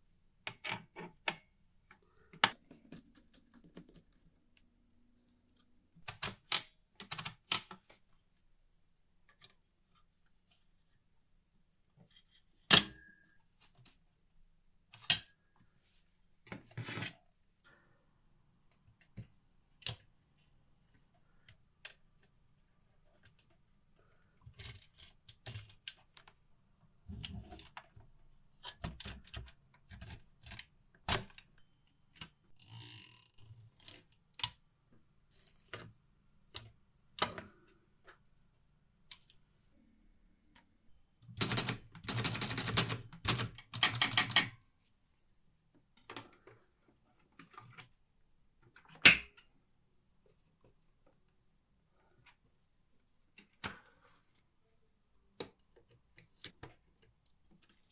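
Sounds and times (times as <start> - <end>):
manual typewriter keys clacking: 41.4 - 44.5.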